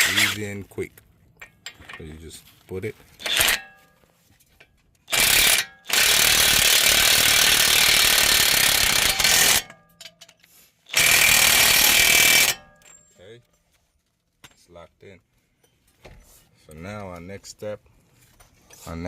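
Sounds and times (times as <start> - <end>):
impact wrench hammering: 3.2 - 3.8, 5.1 - 10.3, 10.9 - 13.0.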